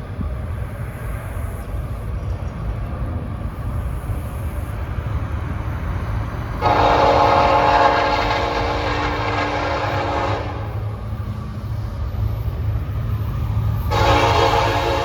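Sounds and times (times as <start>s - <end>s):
locomotive air horn blast: 6.6s - 11.0s, 13.8s - 15.0s.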